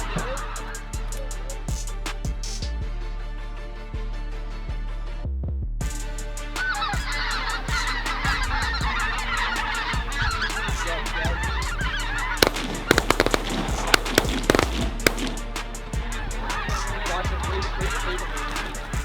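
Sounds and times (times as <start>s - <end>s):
geese honking: 6.6s - 19.0s
sharp loud cracks: 7.1s - 19.0s.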